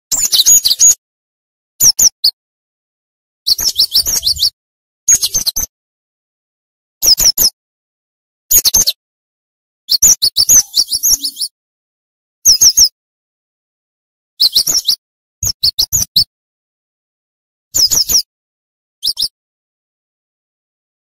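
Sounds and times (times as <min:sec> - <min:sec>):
bird high chirping: 0:00.1 - 0:01.0, 0:03.5 - 0:05.7, 0:09.9 - 0:11.6, 0:12.4 - 0:13.0, 0:14.4 - 0:16.3, 0:17.8 - 0:18.3, 0:19.0 - 0:19.4.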